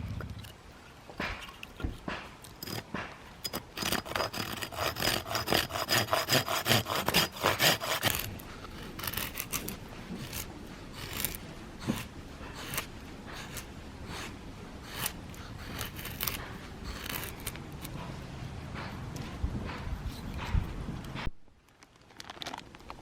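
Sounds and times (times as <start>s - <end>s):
hand saw cutting firewood: 1.2s - 18.2s.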